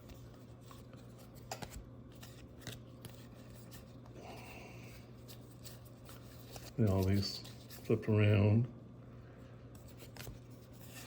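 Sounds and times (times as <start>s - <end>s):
trading cards clicking and rustling: 0.0s - 4.2s, 4.9s - 8.1s, 9.7s - 11.0s.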